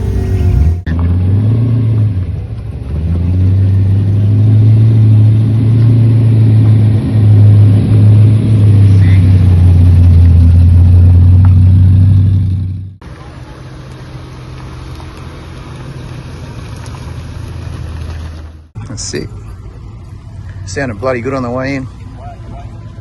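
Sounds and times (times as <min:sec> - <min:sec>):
car engine with loud exhaust: 0:00.0 - 0:23.0.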